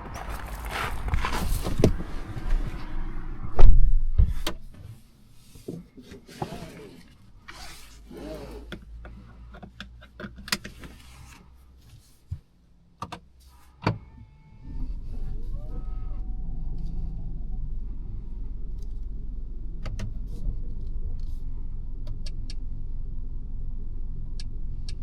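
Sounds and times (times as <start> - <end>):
heavy thump in car: 0.1 - 4.6.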